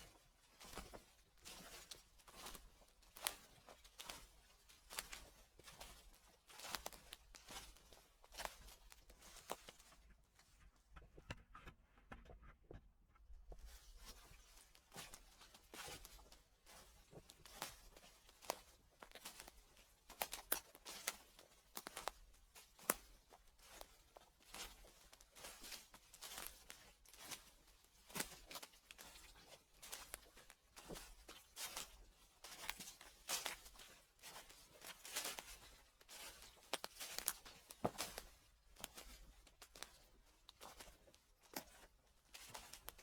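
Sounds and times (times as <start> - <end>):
footsteps crunching dry leaves: 6.5 - 7.8.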